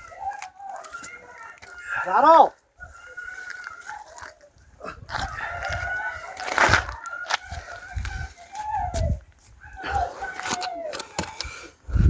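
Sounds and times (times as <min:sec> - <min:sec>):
rooster crowing: 0:00.0 - 0:04.4, 0:05.1 - 0:08.7.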